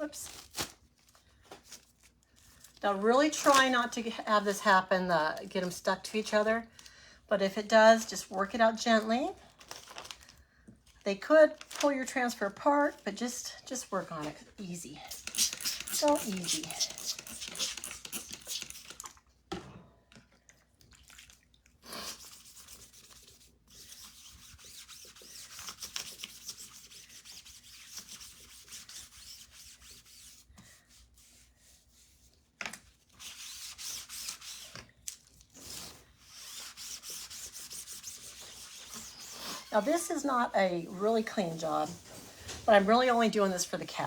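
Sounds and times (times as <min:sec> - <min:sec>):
scrubbing hiss of wiping: 0:15.0 - 0:19.0, 0:35.6 - 0:43.5.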